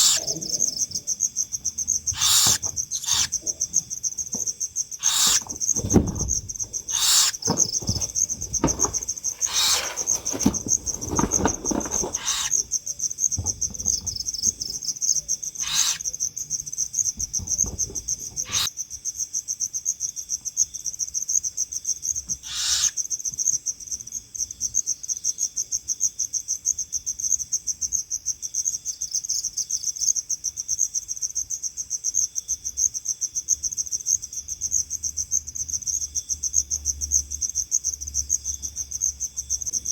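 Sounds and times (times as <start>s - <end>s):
crickets chirping: 0.0s - 39.9s
low rustling: 1.7s - 12.8s
hissing bursts: 2.2s - 3.4s, 5.0s - 10.5s.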